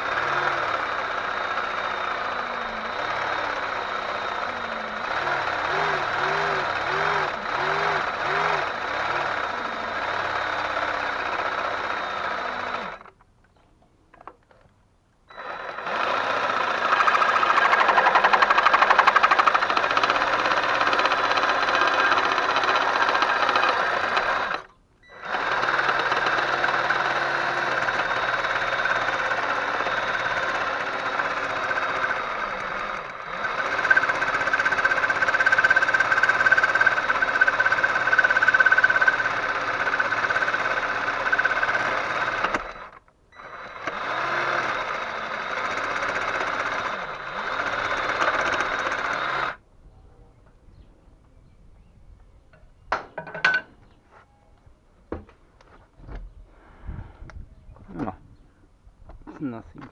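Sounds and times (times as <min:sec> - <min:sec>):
power tool rattling: 0:00.0 - 0:49.6.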